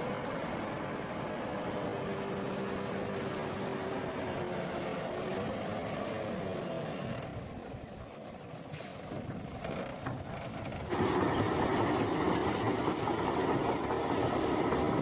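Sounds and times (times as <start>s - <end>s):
diesel engine running: 10.6s - 15.0s.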